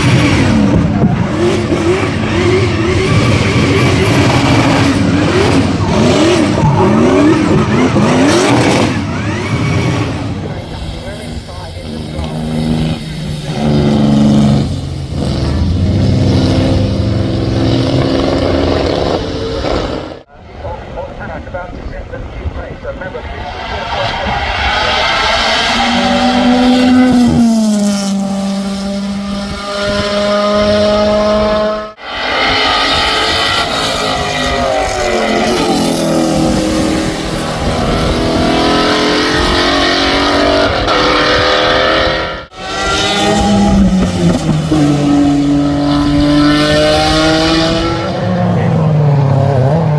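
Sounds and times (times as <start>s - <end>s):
car engine accelerating: 0.0s - 20.3s, 23.5s - 49.9s.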